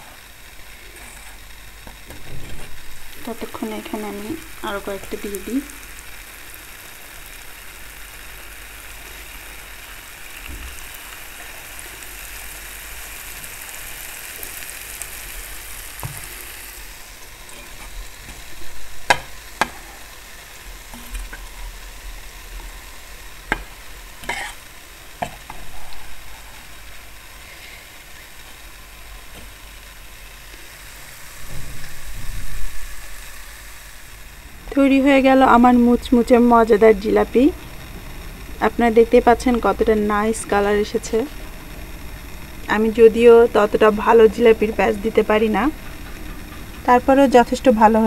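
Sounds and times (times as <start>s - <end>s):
deep-frying sizzle: 0.0s - 48.0s
spoon knocking pan: 19.0s - 19.8s, 23.4s - 24.5s.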